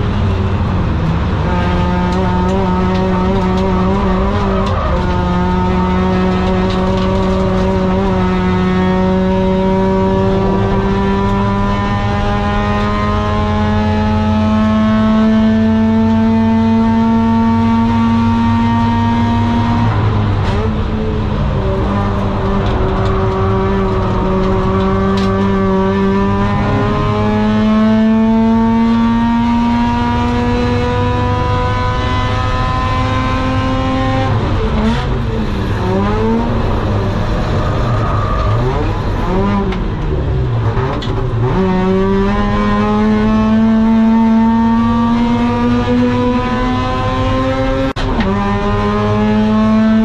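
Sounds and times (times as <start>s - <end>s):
rotary engine accelerating: 0.0s - 50.0s.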